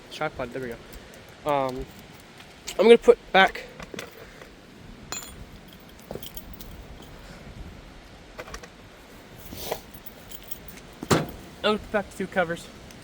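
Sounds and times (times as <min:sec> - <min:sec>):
small parts clicking and clinking: 0:05.1 - 0:07.2.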